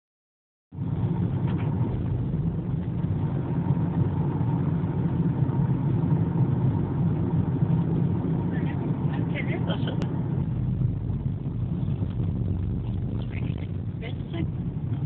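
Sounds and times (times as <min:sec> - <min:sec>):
truck diesel engine droning: 0:00.8 - 0:15.0.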